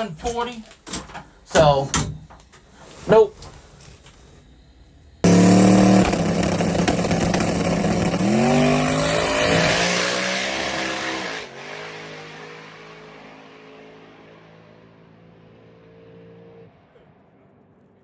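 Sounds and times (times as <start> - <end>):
drag car engine roaring: 5.2 - 15.3.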